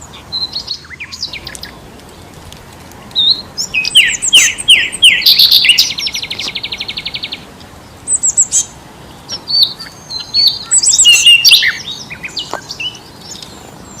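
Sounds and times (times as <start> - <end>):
songbirds chirping: 0.0 - 14.0
fast bird trill: 3.2 - 7.4, 8.1 - 13.4.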